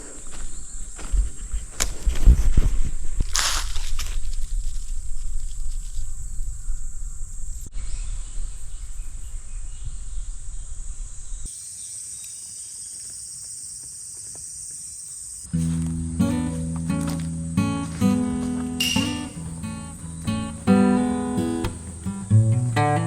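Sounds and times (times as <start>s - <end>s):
insects chorus: 5.2s - 23.0s.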